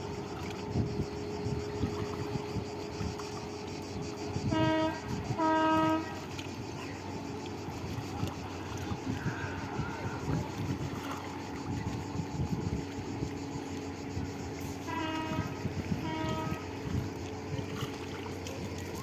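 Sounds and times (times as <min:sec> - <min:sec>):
steady motor hum: 0:00.0 - 0:19.0
wind noise: 0:00.0 - 0:19.0
horn blasts: 0:04.4 - 0:06.3, 0:14.8 - 0:16.8.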